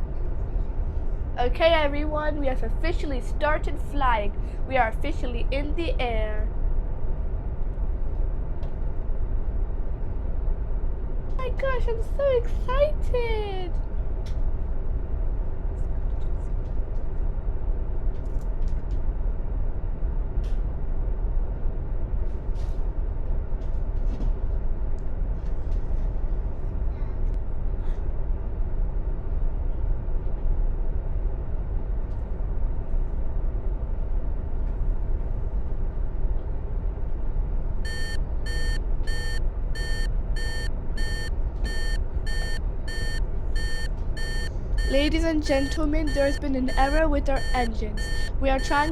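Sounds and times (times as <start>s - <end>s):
airplane drone: 0.0s - 48.9s
electronic warning alarm beeping: 37.9s - 48.9s.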